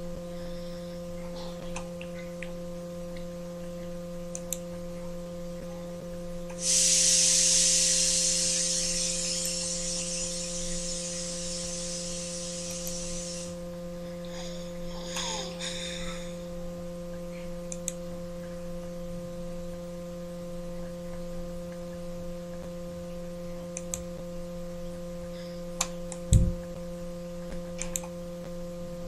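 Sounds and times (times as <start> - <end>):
electrical hum: 0.0 - 29.0
loud hiss: 6.6 - 13.6.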